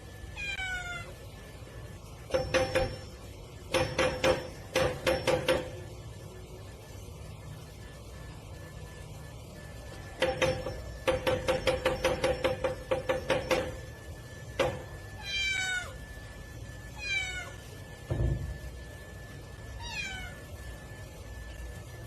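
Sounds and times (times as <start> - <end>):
cat meowing: 0.4 - 1.2, 15.2 - 16.0, 17.0 - 17.6, 19.8 - 20.4.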